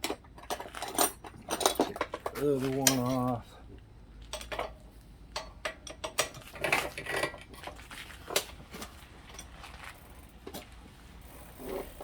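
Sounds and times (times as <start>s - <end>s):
metal tools and bike parts clinking: 0.0s - 3.4s, 4.3s - 8.5s.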